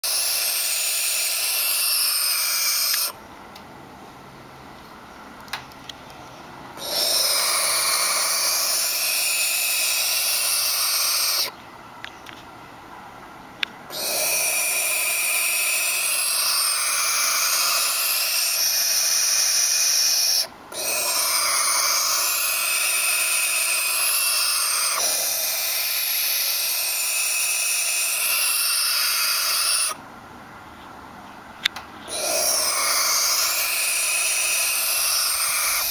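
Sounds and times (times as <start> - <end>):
owl chicks rasping hiss: 0.0 - 3.2, 6.8 - 11.6, 13.9 - 30.0, 32.1 - 35.9.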